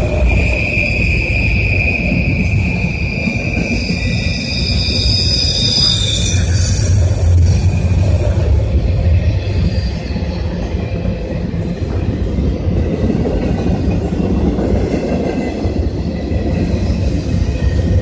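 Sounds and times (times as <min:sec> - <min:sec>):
high wheel squeal: 0:00.0 - 0:11.8
train wheels rumbling on rail: 0:00.0 - 0:18.0.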